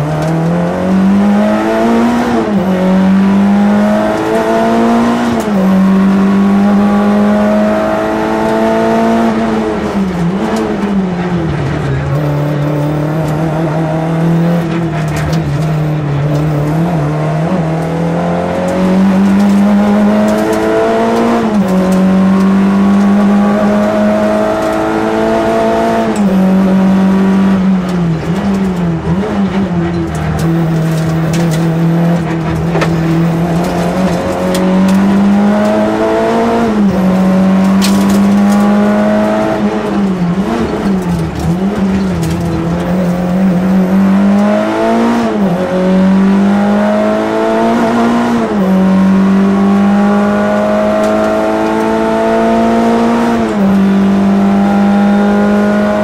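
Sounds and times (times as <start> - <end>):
rally car engine from inside cabin: 0.0 - 56.0
tyre and road noise: 0.0 - 56.0.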